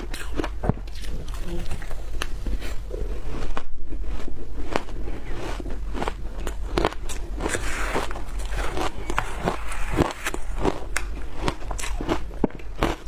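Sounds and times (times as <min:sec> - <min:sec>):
crunching frozen food: 0:00.0 - 0:13.0.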